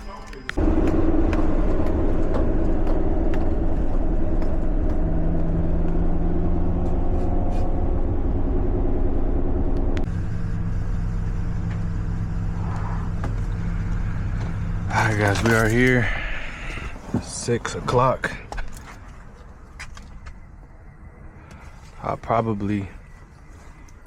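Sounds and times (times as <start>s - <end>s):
truck engine and road noise: 0.0s - 24.0s.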